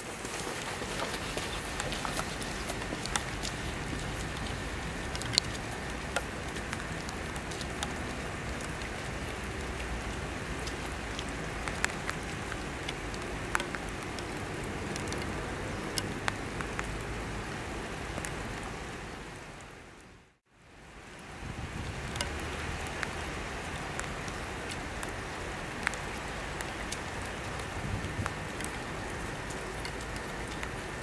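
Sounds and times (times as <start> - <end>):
rain on wet tarmac: 0.0 - 31.0
raindrops ticking close by: 0.0 - 31.0.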